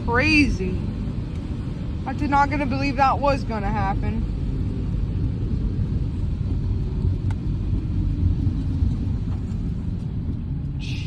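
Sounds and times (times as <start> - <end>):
road and tyre noise: 0.0 - 11.0
rain beating on car body: 4.2 - 10.7.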